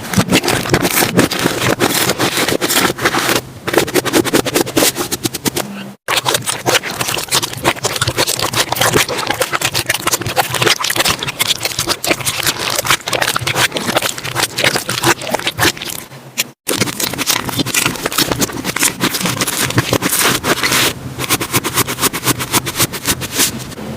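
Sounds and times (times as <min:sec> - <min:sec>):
slime squeezed wet crackling: 0:06.1 - 0:23.4.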